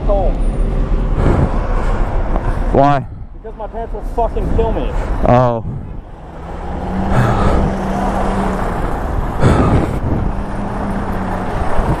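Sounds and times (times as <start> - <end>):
highway traffic passing: 0.0 - 12.0
low engine hum and rumble: 0.0 - 12.0
vehicle rushing past: 4.3 - 12.0.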